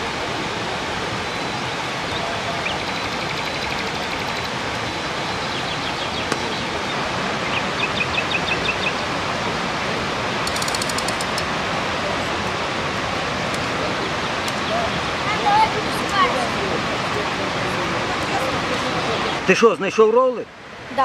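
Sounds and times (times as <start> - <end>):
waterfall rushing: 0.0 - 21.0
bird chirping: 1.6 - 4.6, 5.3 - 9.1.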